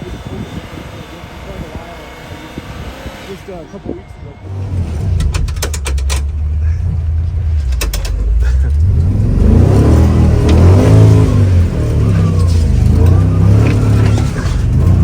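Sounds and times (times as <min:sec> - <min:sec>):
truck engine revving: 0:00.0 - 0:15.0
sharp clicks or knocks: 0:05.2 - 0:06.4, 0:07.6 - 0:08.3.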